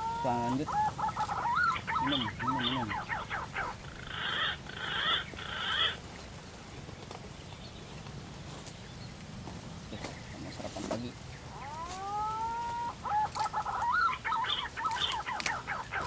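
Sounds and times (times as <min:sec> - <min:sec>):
quick wavering bird calls: 0:00.0 - 0:06.0, 0:10.0 - 0:16.0
harsh bird calls: 0:00.0 - 0:06.4, 0:09.9 - 0:16.0
outdoor background noise: 0:00.0 - 0:16.0.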